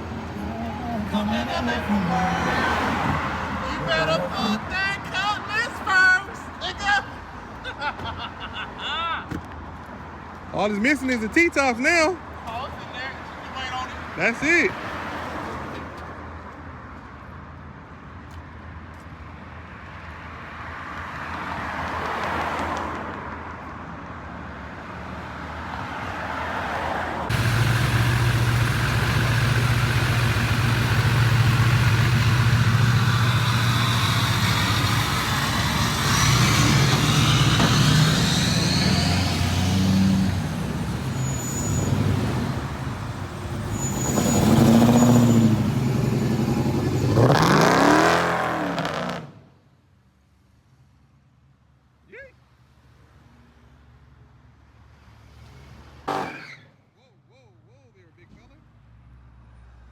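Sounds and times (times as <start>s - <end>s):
vehicle engine running: 27.3s - 37.9s.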